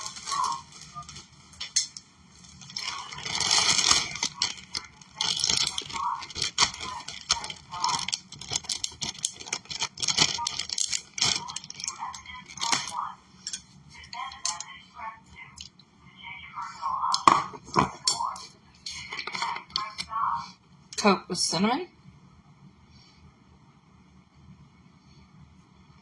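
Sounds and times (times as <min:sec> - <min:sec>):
scraping and rustling: 0:00.0 - 0:14.7.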